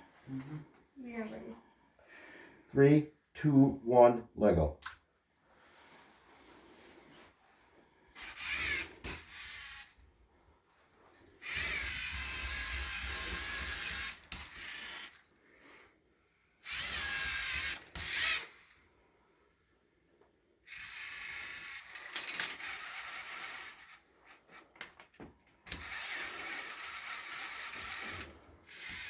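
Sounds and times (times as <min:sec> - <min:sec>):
small electric motors whirring: 0:08.2 - 0:10.0, 0:11.2 - 0:15.3, 0:16.5 - 0:18.8, 0:20.6 - 0:24.8, 0:25.6 - 0:29.0.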